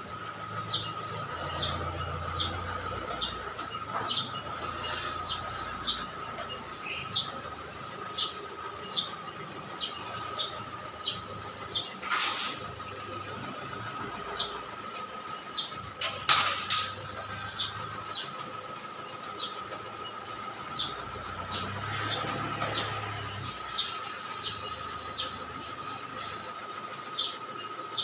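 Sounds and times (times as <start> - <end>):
bird chirping: 0.6 - 12.0, 17.3 - 18.4, 19.3 - 26.3, 27.1 - 28.0
loud noisy rasp: 12.0 - 12.7.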